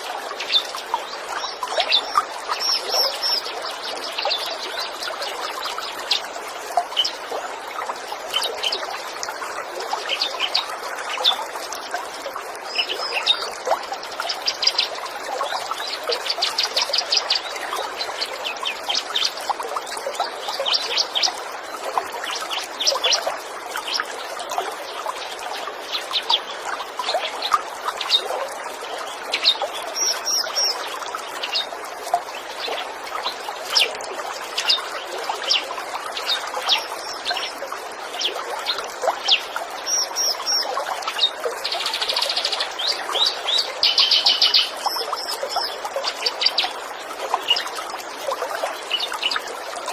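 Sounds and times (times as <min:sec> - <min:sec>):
stream water trickling: 0:00.0 - 0:49.9
songbirds chirping and trilling: 0:24.9 - 0:47.9.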